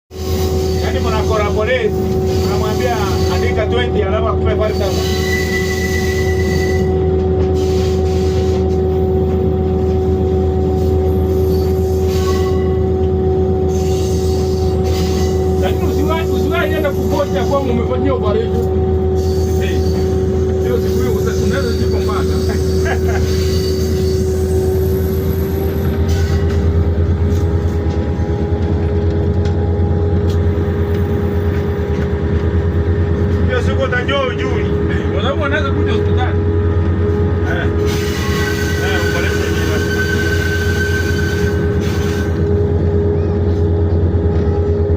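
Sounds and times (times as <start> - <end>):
train rumbling past: 0.1 - 44.9
constant drone: 12.7 - 44.9.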